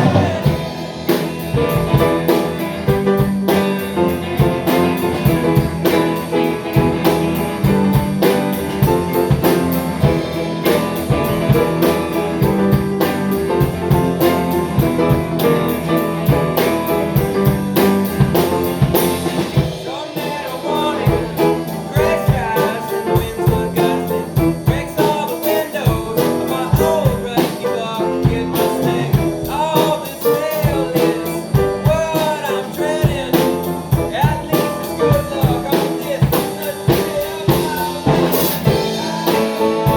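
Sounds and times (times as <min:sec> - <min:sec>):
blues-rock band playing: 0:00.0 - 0:39.9.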